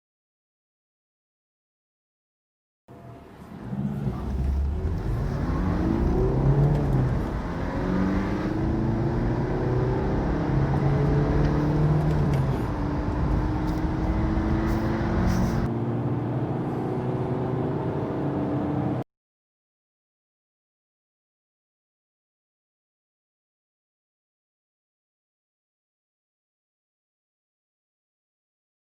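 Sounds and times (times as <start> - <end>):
car engine accelerating hard: 3.0 - 19.0.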